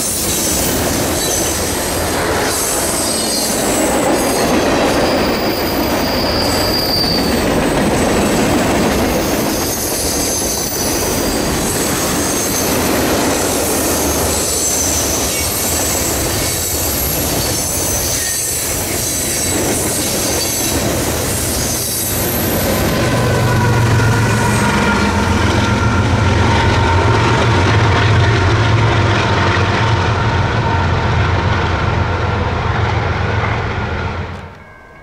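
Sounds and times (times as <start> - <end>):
wheels squealing: 0.0 - 27.8
railroad cars rumbling and clattering: 0.0 - 35.0.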